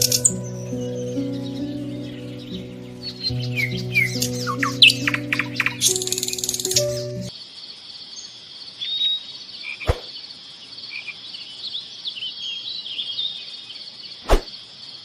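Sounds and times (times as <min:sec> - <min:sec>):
bird chirps: 0:00.0 - 0:07.3
insects chirring: 0:00.0 - 0:15.0.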